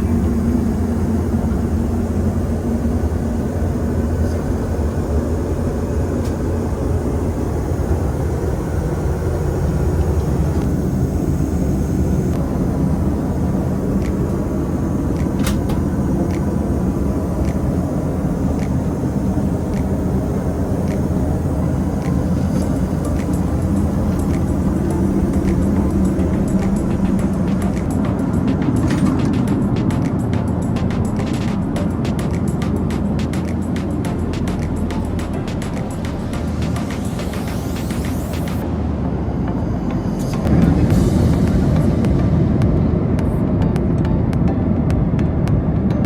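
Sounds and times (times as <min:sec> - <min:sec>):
airplane cabin engine drone: 0:00.0 - 0:46.0.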